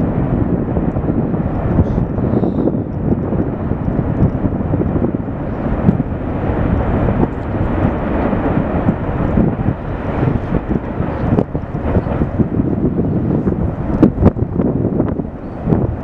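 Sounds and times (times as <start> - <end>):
lava fountain rumbling: 0.0 - 16.0.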